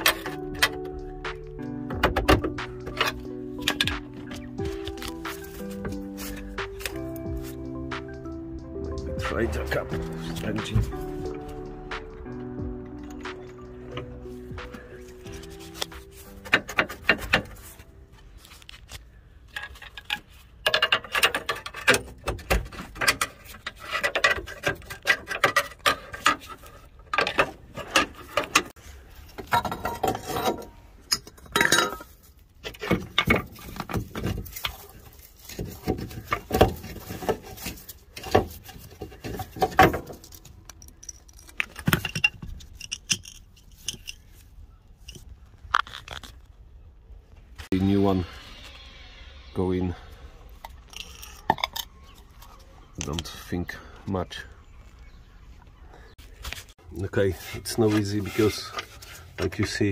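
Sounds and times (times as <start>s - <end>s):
metallic clanking of tools: 19.5s - 44.4s.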